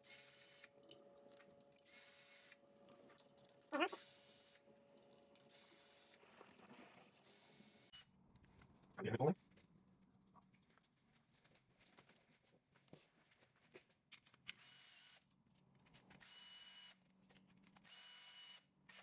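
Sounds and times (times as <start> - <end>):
cordless power tool whirring: 17.8 - 18.6.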